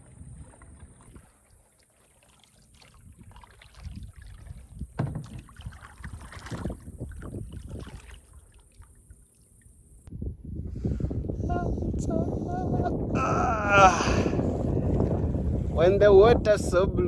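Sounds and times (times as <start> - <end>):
kayak paddle splashing water: 0.0 - 9.9.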